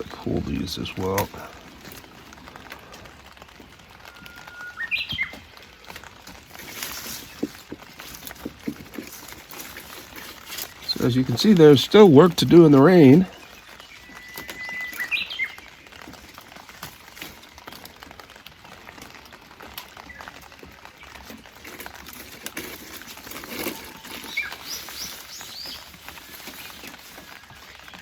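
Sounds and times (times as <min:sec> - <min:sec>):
light rain patter: 0:00.0 - 0:28.0
songbird calling: 0:04.1 - 0:05.6, 0:09.0 - 0:15.9, 0:23.6 - 0:28.0.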